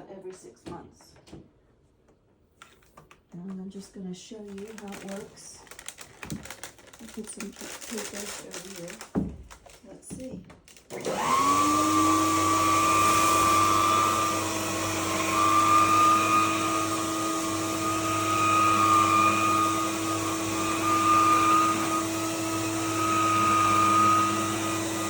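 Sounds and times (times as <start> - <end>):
vacuum cleaner motor whine: 10.9 - 25.0.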